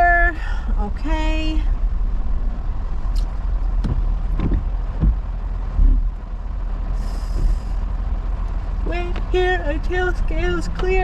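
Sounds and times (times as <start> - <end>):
truck engine and road rumble: 0.0 - 11.0
knocks and rattles: 3.8 - 6.1.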